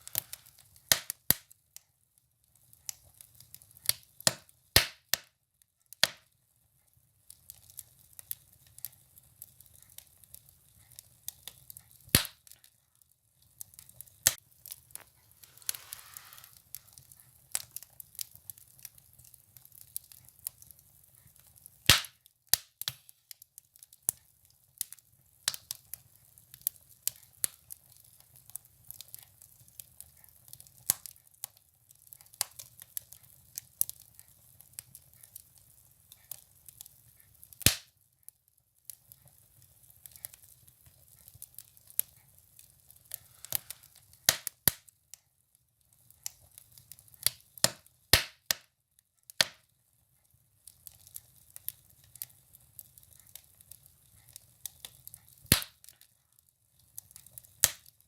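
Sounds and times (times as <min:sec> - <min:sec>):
firewood crackling and popping: 0:00.0 - 0:06.3, 0:06.9 - 0:58.0
brief hiss: 0:15.4 - 0:16.6.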